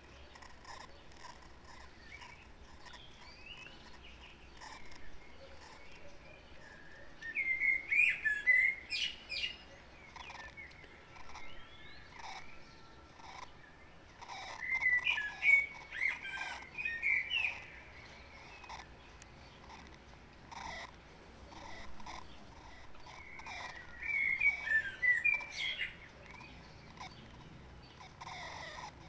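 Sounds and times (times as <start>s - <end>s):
bird chirping: 0.0s - 29.0s.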